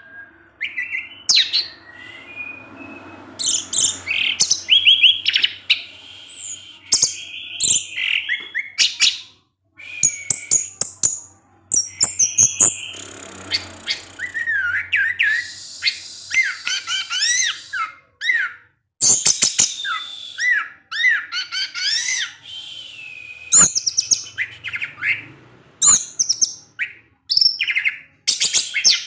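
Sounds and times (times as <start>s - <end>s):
thrush singing: 9.8s - 18.1s.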